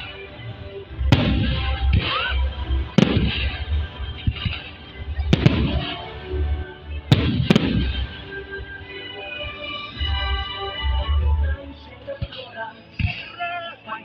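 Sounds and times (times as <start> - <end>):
firework crackling: 1.0 - 6.5, 7.1 - 10.0.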